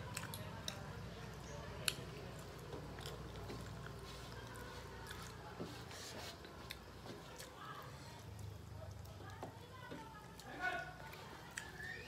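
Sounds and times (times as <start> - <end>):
chewing and lip-smacking: 0.0 - 5.6.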